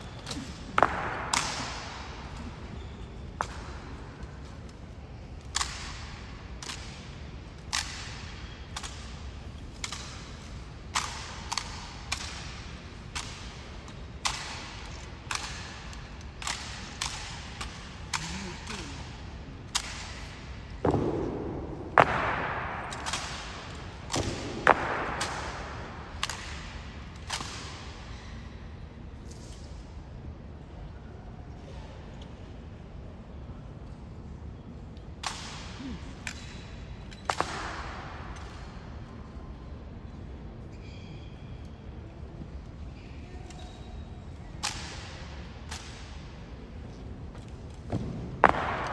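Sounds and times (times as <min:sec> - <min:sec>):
rifles slapping and clacking: 0:03.3 - 0:19.0, 0:19.6 - 0:27.9, 0:47.4 - 0:48.9.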